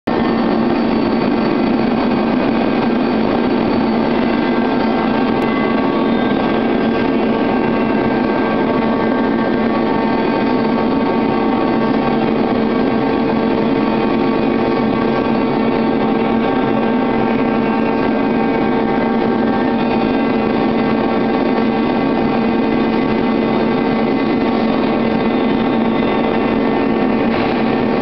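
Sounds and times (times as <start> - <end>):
glass-washing machine droning: 0.1 - 28.0.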